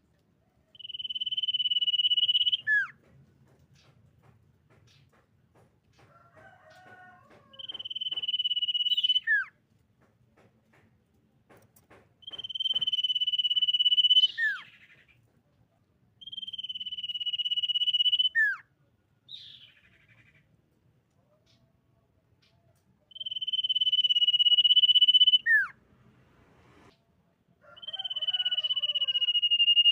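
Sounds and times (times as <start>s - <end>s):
faint bird chirps: 0.6s - 2.9s, 12.2s - 15.2s, 16.2s - 18.6s, 22.4s - 25.7s, 27.7s - 29.9s
bird singing high whistles: 0.8s - 2.9s, 7.6s - 9.5s, 12.2s - 14.7s, 16.2s - 18.6s, 23.1s - 25.7s, 27.8s - 29.9s.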